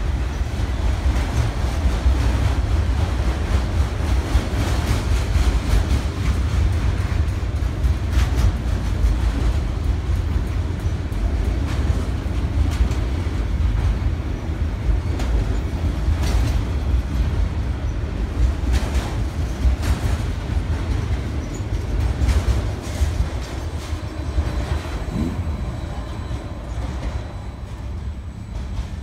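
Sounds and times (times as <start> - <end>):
train rumbling past: 0.0 - 29.0
wheels clacking over rail joints: 0.0 - 29.0.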